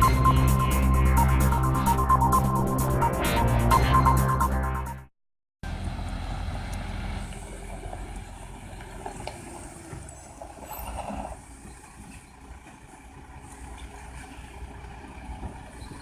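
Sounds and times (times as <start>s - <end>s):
truck engine rumbling: 0.0s - 5.0s, 5.6s - 16.0s.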